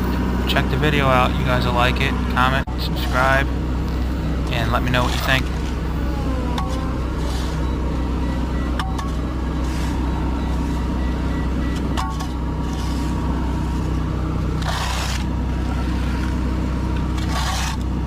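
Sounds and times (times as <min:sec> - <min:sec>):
engine running: 0:00.0 - 0:18.0
shovel scraping asphalt: 0:14.6 - 0:15.3, 0:17.2 - 0:17.9.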